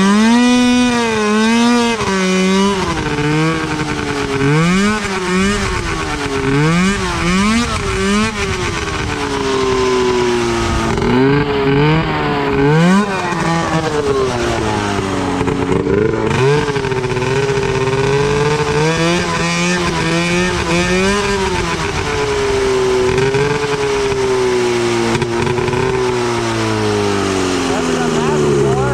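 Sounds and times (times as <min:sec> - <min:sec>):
two-stroke engine revving: 0:00.0 - 0:28.9.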